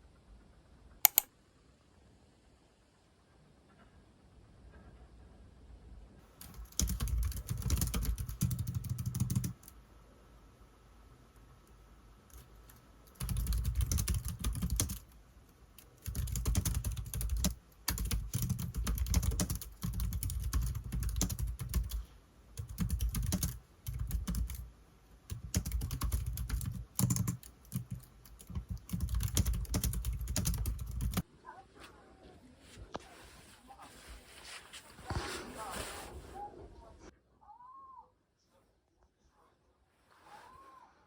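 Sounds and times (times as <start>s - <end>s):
keyboard typing: 1.0s - 1.3s, 6.4s - 9.8s, 12.3s - 24.7s, 25.3s - 31.2s.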